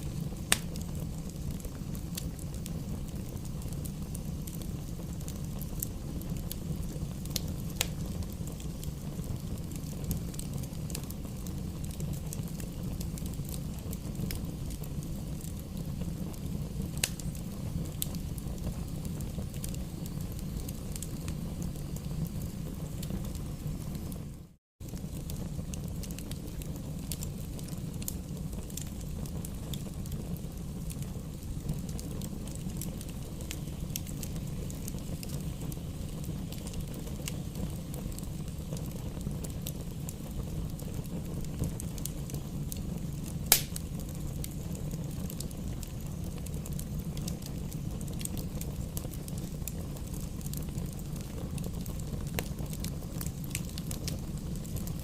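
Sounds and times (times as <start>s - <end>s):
fire crackling: 0.0s - 55.0s
fire rumbling in a fireplace: 0.0s - 55.0s
loud fire pop: 43.5s - 43.9s.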